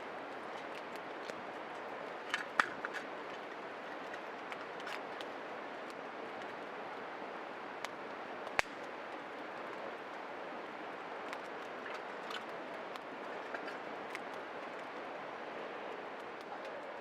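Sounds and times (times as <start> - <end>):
wood fire crackling and popping: 7.8 - 9.8.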